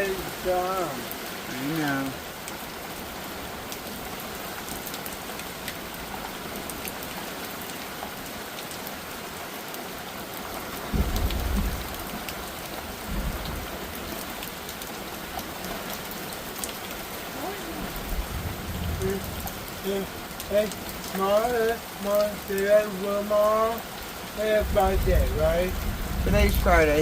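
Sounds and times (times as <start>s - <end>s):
heavy rain pouring: 0.0s - 27.0s
low rumbles: 17.3s - 21.2s, 24.2s - 27.0s.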